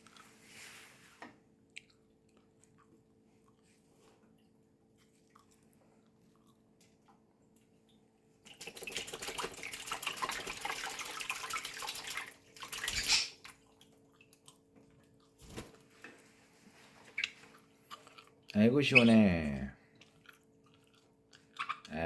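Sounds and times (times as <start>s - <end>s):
water splashing: 8.5s - 13.9s.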